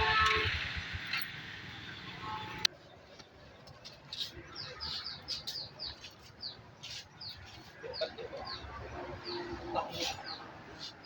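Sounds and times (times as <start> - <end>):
small birds chirping: 4.1 - 11.0.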